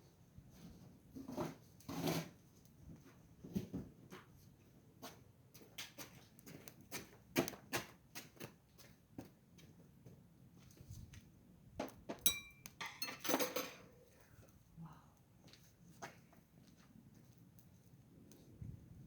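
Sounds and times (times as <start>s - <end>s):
metal utensils clinking: 12.3s - 13.9s.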